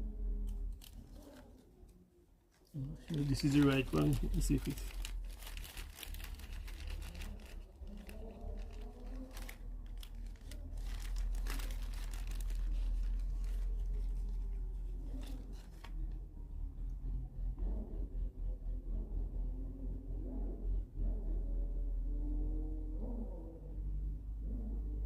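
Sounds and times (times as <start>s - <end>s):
small parts crinkling and rustling: 0.4s - 16.2s
steady low rumble: 2.8s - 25.0s.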